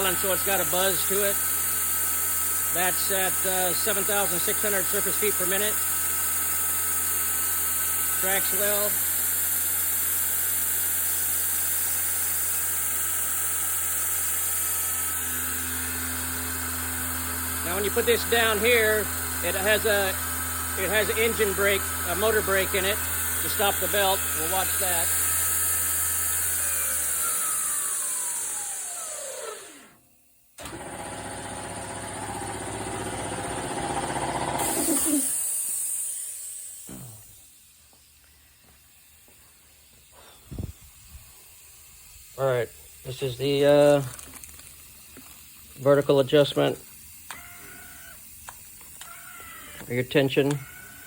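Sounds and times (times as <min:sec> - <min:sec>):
belt grinder motor whine: 0:00.0 - 0:30.0, 0:30.6 - 0:36.9, 0:46.0 - 0:51.0
drive wheel buzz: 0:00.0 - 0:30.0, 0:30.6 - 0:38.8, 0:45.0 - 0:51.0.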